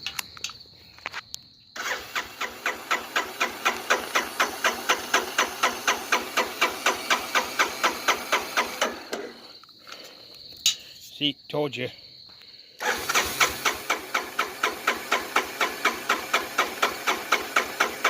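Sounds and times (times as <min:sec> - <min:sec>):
electric starter cranking engine: 0:01.8 - 0:09.5, 0:12.8 - 0:18.0.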